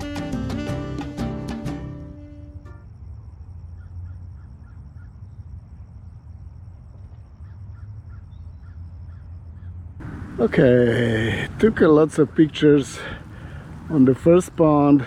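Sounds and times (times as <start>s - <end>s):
steady low rumble: 2.9s - 15.0s
distant birds calling: 3.6s - 5.6s, 7.1s - 15.0s.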